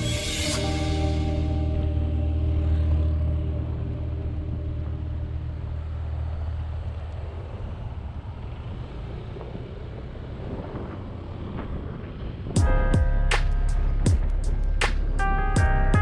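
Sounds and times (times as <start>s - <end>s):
road noise: 0.0s - 16.0s
wind noise: 0.0s - 16.0s
motorcycle engine running: 12.6s - 16.0s.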